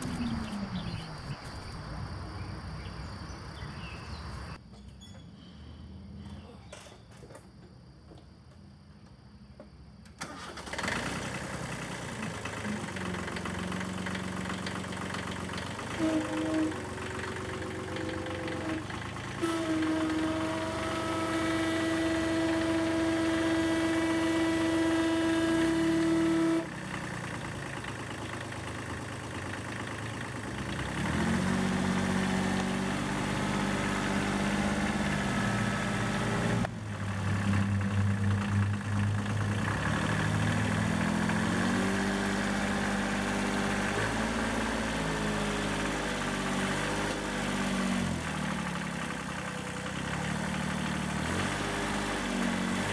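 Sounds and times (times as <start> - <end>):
motor humming: 0.0 - 2.2.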